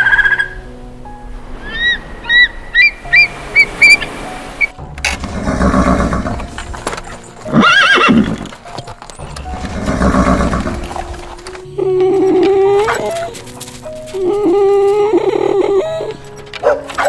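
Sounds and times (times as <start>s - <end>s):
horse whinnying: 5.2s - 8.6s, 9.2s - 11.2s, 11.8s - 13.5s
breathy noises: 9.2s - 16.8s.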